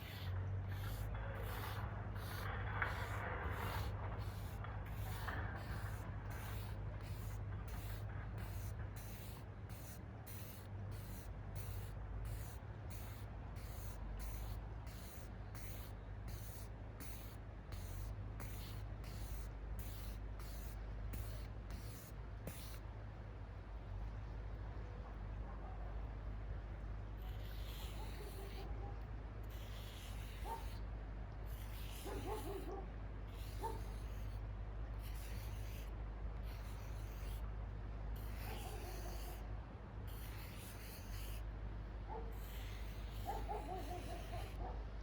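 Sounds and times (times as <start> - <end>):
marker rubbing over paper: 0.0 - 22.8, 27.3 - 28.6, 29.5 - 30.8, 31.5 - 34.4, 35.0 - 37.4, 38.2 - 39.4, 40.1 - 41.4, 42.3 - 44.6
low background rumble: 0.0 - 45.0.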